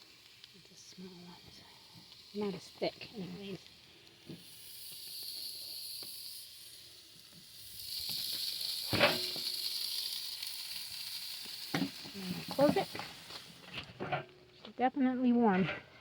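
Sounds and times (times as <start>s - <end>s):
patties sizzling on a grill: 0.0s - 15.8s
sharp metal clank: 8.9s - 9.4s.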